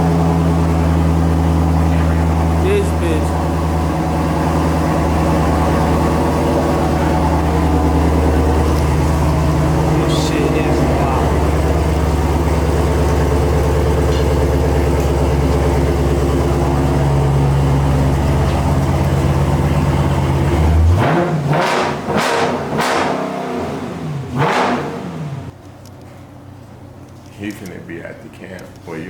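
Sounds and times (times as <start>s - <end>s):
car engine revving: 0.0s - 25.6s.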